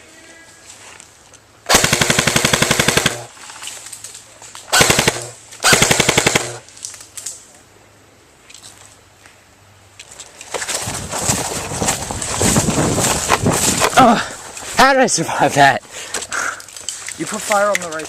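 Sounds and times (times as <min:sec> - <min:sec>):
airsoft rifle firing bursts: 0:01.7 - 0:03.3, 0:04.7 - 0:06.6.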